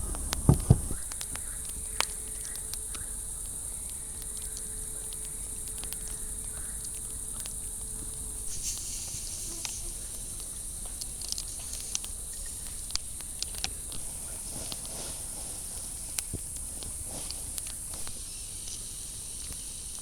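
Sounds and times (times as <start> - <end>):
sharp ticks and light knocks: 0.0 - 7.6
high-pitched hiss: 0.0 - 20.0.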